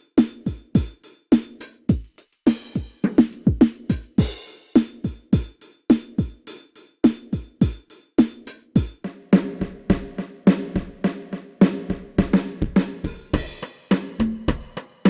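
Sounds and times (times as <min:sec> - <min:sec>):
snare and hi-hat hits: 0:00.0 - 0:15.0
kick drum hits: 0:02.8 - 0:04.4, 0:12.0 - 0:14.8.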